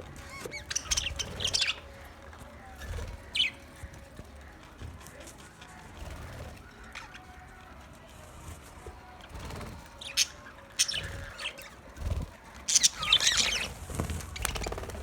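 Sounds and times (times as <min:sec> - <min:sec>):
budgerigars chirping: 0:00.2 - 0:04.6, 0:09.5 - 0:15.0.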